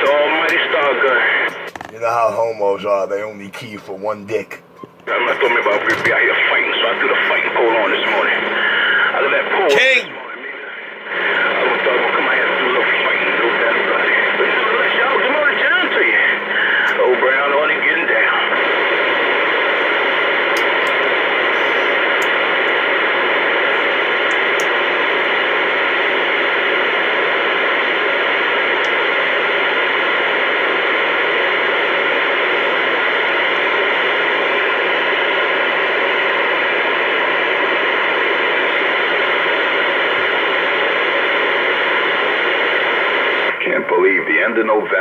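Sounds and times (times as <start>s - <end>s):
radio static hiss: 0.0s - 45.0s.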